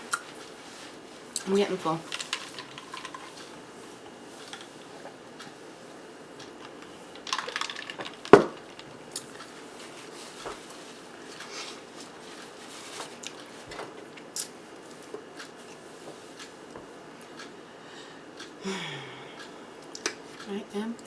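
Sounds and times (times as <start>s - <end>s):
crackly rustle: 0.1s - 5.5s, 6.4s - 16.7s.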